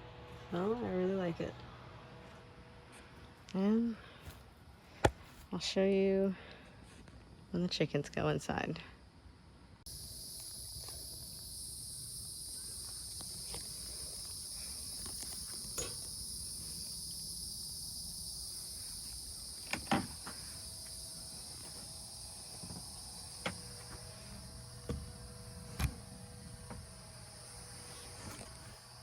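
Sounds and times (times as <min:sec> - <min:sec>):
crickets chirring: 0:06.1 - 0:29.0.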